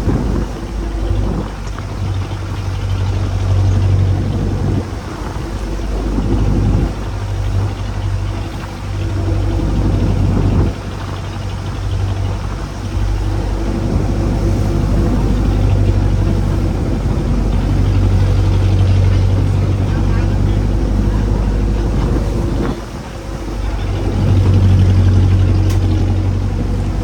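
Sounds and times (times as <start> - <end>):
boat engine humming: 0.0 - 27.0
rushing wind and water: 0.0 - 27.0.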